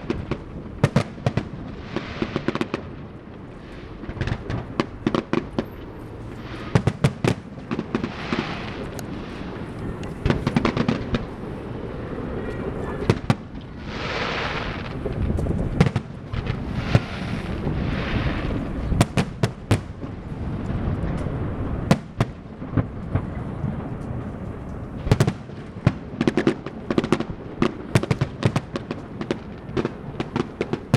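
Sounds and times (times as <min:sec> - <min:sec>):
fireworks bangs: 0:00.0 - 0:30.9
fireworks hissing: 0:03.5 - 0:19.2.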